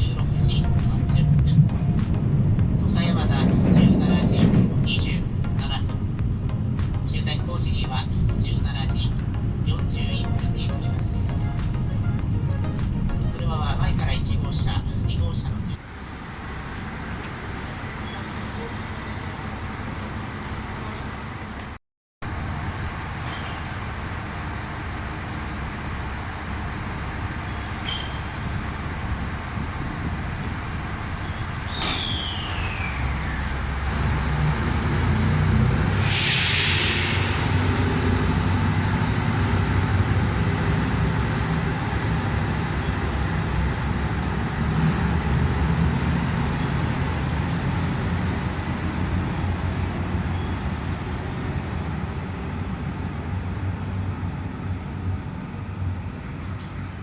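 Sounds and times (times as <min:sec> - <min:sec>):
train rumbling: 0:00.0 - 0:57.0
falling whistle-like tone: 0:31.7 - 0:33.6, 0:35.8 - 0:39.2
hiss of air: 0:35.7 - 0:39.4.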